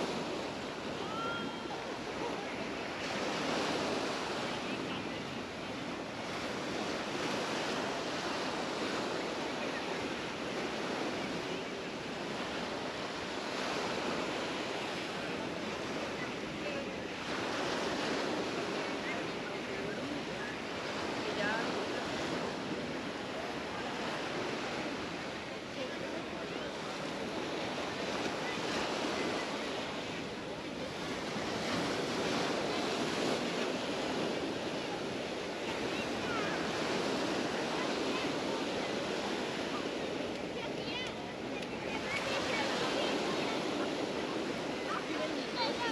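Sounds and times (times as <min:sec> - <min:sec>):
surf washing onto beach: 0:00.0 - 0:45.9.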